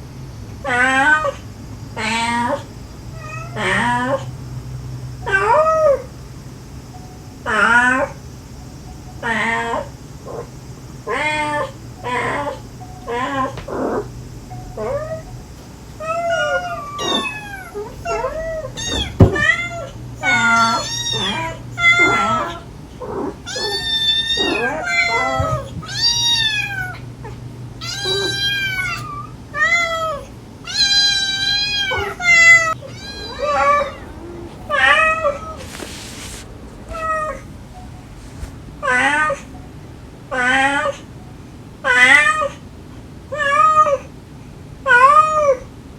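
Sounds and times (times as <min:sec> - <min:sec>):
cat and kittens meowing: 0:00.7 - 0:01.4, 0:02.0 - 0:04.3, 0:05.2 - 0:06.2, 0:06.9 - 0:08.2, 0:09.2 - 0:37.5, 0:38.8 - 0:39.5, 0:40.3 - 0:41.2, 0:41.8 - 0:42.6, 0:43.3 - 0:44.1, 0:44.8 - 0:45.7
hiss-like noise: 0:31.7 - 0:40.3.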